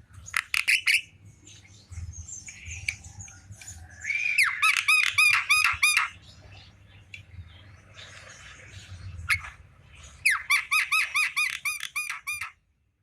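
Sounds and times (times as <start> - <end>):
myna bird squeaky calls: 0.2 - 1.1, 4.0 - 6.2, 9.2 - 9.6, 10.2 - 12.6.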